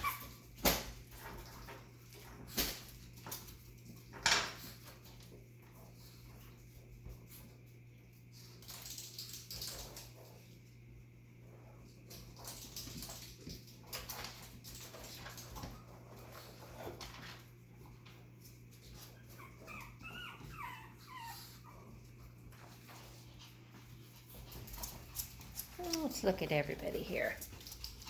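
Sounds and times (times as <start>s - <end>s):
puppies scuffling and clicking: 0.0s - 28.0s
puppies whimpering: 19.0s - 22.0s.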